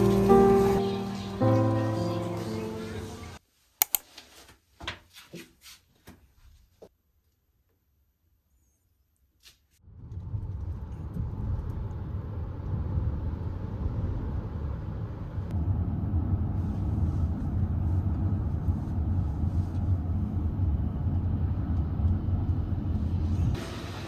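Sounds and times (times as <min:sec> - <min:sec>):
moving vehicle rumble: 0:09.9 - 0:24.0.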